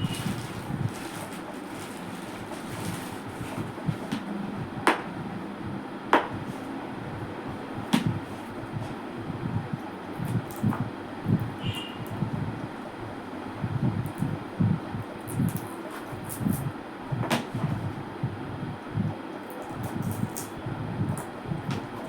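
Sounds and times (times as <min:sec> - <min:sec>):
rustling of jewellery box packaging: 0:00.0 - 0:03.8.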